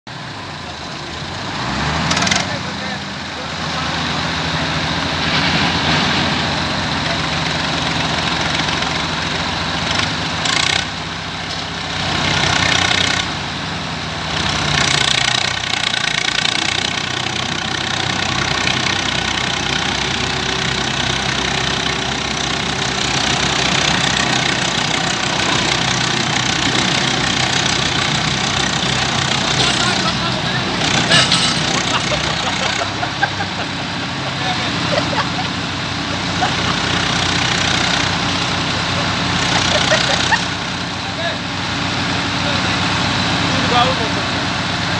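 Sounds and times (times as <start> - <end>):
diesel engines running hard: 0.1 - 44.9.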